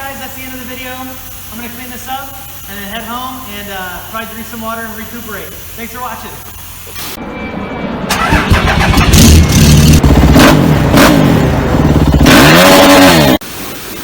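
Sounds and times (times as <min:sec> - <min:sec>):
dirt bike engine revving: 0:08.1 - 0:13.4.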